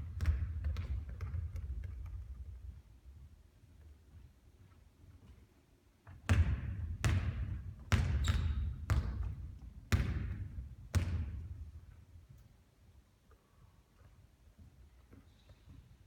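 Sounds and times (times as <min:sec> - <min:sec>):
basketball bouncing on hard court: 0:00.0 - 0:02.3, 0:06.2 - 0:11.5.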